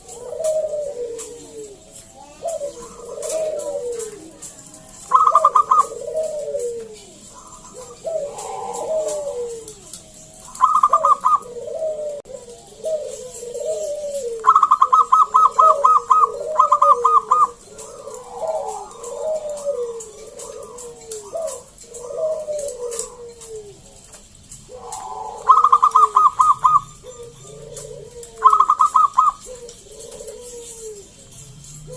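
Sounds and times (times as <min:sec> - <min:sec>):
doves cooing: 0:00.0 - 0:31.9
sharp high bird notes: 0:07.2 - 0:11.6, 0:13.0 - 0:22.0, 0:24.4 - 0:27.5.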